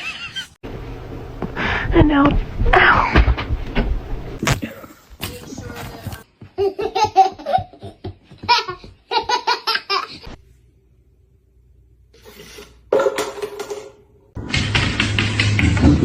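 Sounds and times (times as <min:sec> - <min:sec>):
high-pitched human laughter: 0:00.0 - 0:00.5.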